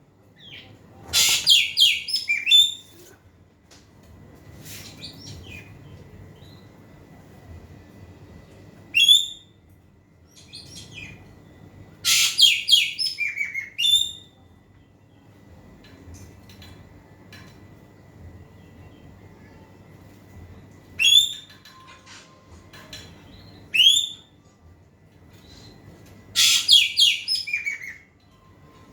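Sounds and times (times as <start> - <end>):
bird calling: 26.4 - 28.0.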